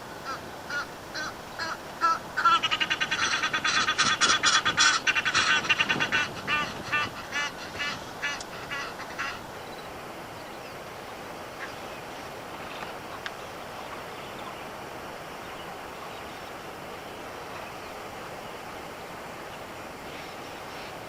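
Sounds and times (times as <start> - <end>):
bird chattering calls: 0.2 - 10.8.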